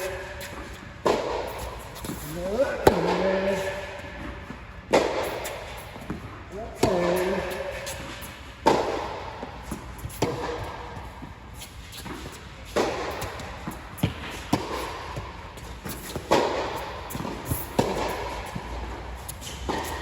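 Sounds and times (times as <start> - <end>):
tennis balls struck by racquets: 0.0 - 20.0.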